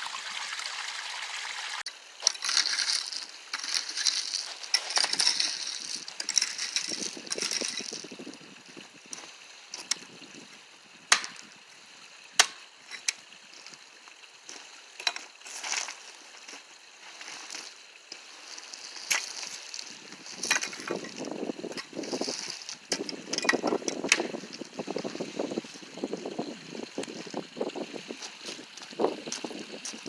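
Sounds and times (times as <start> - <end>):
shovel blade clinking on stones: 2.2 - 8.0
shovel digging into gravel: 2.2 - 8.0.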